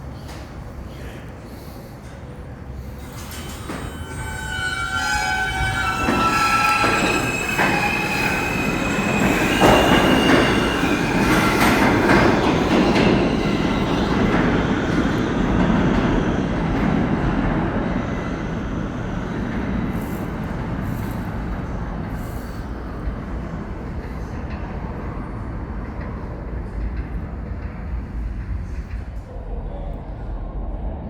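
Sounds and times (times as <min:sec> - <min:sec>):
subway train running past: 0:00.0 - 0:31.0
steel wheels squealing: 0:02.8 - 0:15.4
wheels clacking over rail joints: 0:03.1 - 0:15.8.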